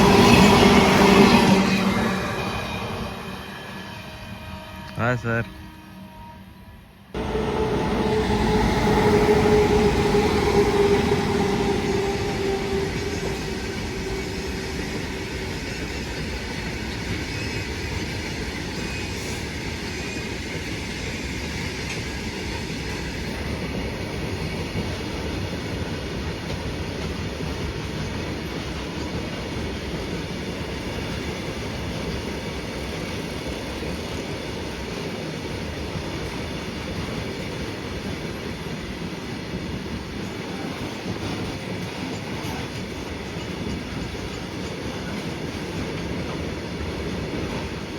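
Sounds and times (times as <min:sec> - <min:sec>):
freight train rolling on rails: 0:00.0 - 0:47.9.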